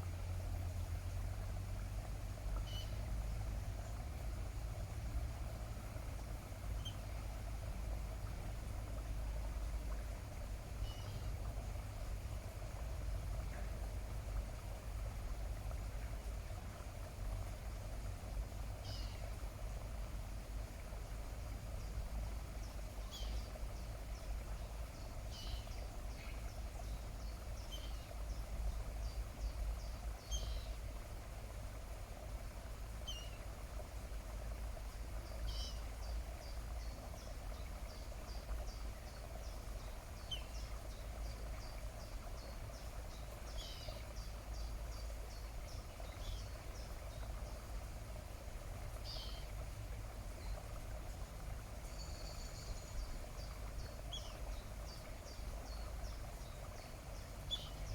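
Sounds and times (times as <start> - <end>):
small birds chirping: 22.6 - 30.8, 35.2 - 47.6, 49.0 - 49.5, 51.8 - 57.9.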